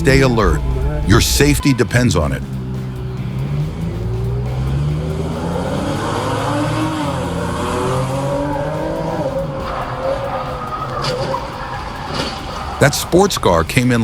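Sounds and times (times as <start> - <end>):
car engine running hard: 0.0 - 13.4
tyre squeal: 9.0 - 12.9.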